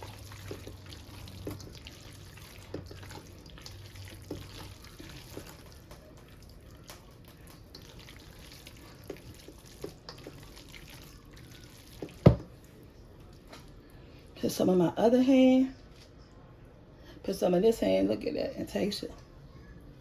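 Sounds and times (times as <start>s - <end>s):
spoon stirring in a bowl: 0.0s - 12.7s.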